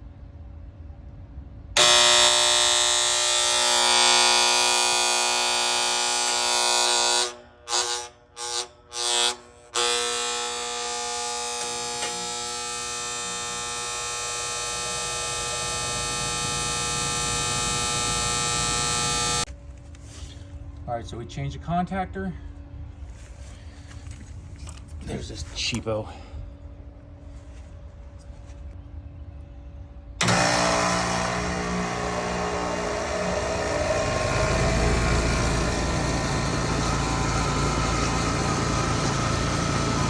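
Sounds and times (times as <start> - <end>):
contactor chattering: 1.8 - 19.5, 30.2 - 40.0
contactor coil buzzing: 1.8 - 19.5, 30.2 - 40.0.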